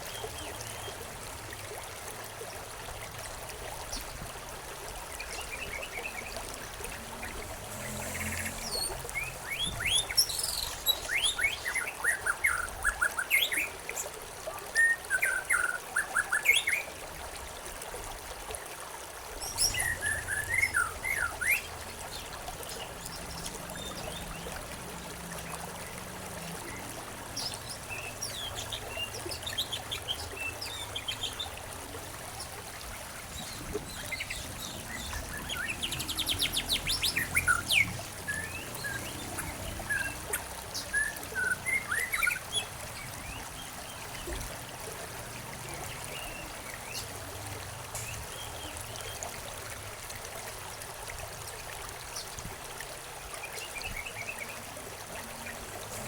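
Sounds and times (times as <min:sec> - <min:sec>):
trickle of running water: 0:00.0 - 0:56.0
songbirds chirping and singing: 0:33.4 - 0:42.8.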